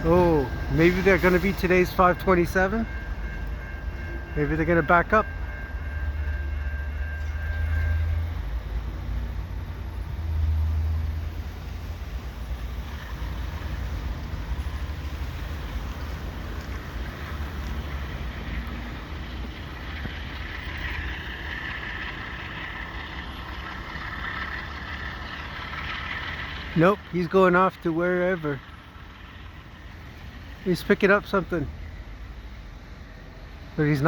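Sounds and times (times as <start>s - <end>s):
diesel locomotive engines rumbling: 0.0s - 34.0s.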